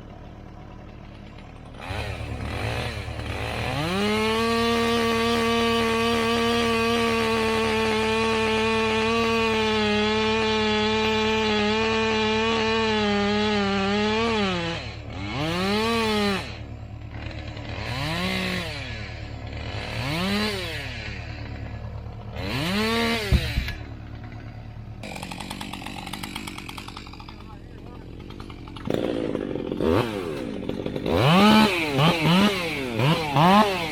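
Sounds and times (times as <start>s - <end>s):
chainsaw revving: 0.0s - 33.9s.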